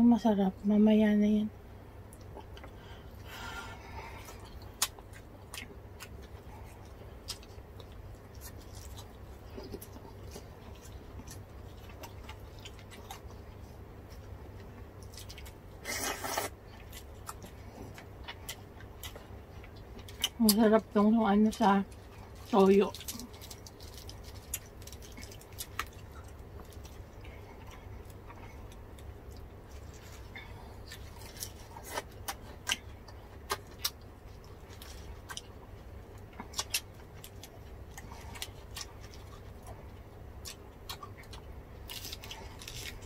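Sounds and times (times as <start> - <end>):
faint low hum: 0.0 - 43.0
crunching crispy food: 7.2 - 13.4, 21.9 - 35.6, 40.4 - 43.0.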